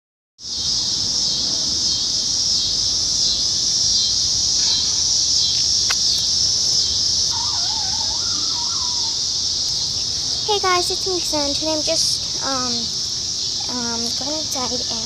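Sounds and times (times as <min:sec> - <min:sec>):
insects buzzing: 0:00.4 - 0:15.0
sharp click: 0:05.8 - 0:06.3.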